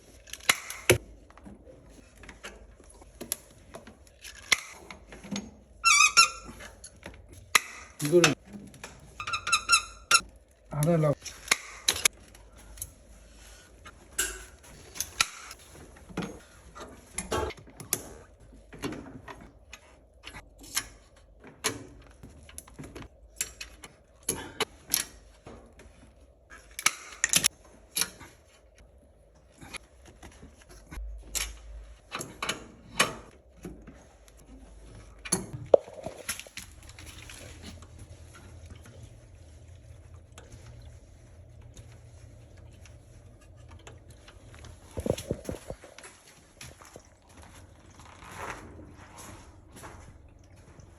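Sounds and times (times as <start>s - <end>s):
metallic clicks and clanks of tools: 14.1s - 15.6s, 31.2s - 33.4s.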